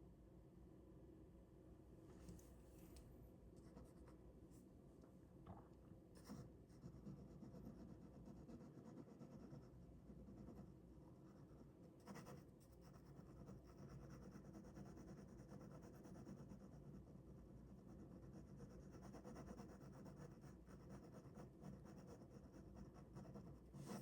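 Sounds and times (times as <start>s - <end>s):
pen scratching on paper: 6.2s - 24.0s.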